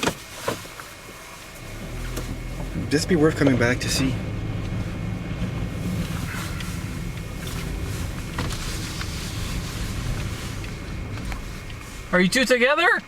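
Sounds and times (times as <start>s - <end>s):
car cabin road and engine rumble: 0.0s - 13.0s
faint ticks: 4.6s - 12.1s.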